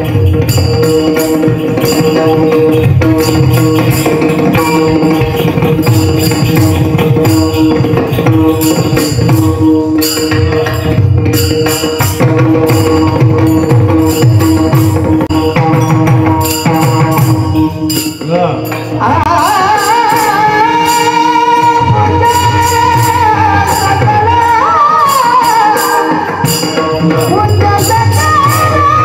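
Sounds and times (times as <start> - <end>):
steady percussion rhythm: 0.0 - 29.0.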